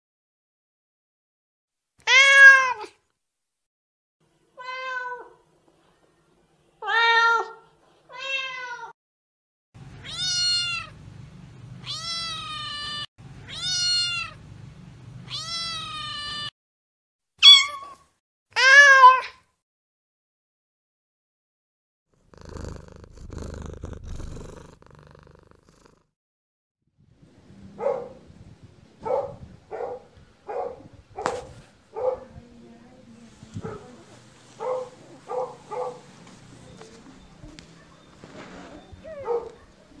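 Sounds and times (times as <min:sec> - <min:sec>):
cat meowing: 0:02.0 - 0:03.0, 0:04.6 - 0:05.4, 0:06.8 - 0:08.9, 0:10.0 - 0:10.9, 0:11.8 - 0:14.4, 0:15.2 - 0:16.5, 0:17.4 - 0:18.0, 0:18.6 - 0:19.4
cat purring: 0:22.2 - 0:26.1.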